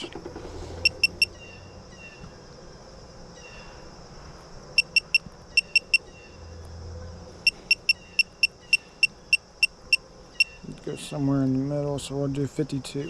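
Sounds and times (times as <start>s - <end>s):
short high beeps: 0.8s - 1.3s, 4.8s - 6.0s, 7.5s - 9.7s.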